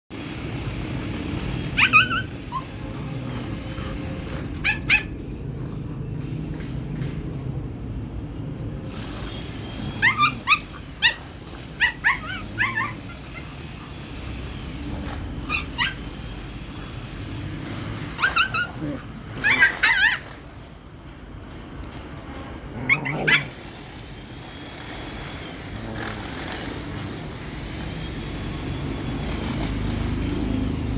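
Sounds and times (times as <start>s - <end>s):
low background hum: 0.2s - 29.7s
dog whining: 0.7s - 6.5s, 8.9s - 20.7s, 22.6s - 30.5s
dog yipping: 1.4s - 5.7s, 9.2s - 20.6s, 22.8s - 23.8s.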